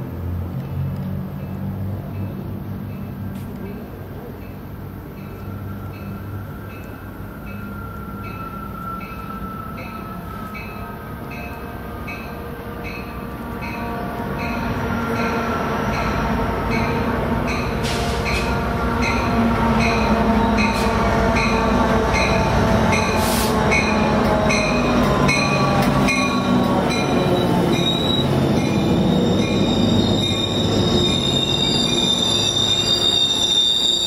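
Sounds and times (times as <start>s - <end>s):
locomotive bell ringing: 3.8s - 34.0s
wheel and brake squeal: 27.2s - 34.0s.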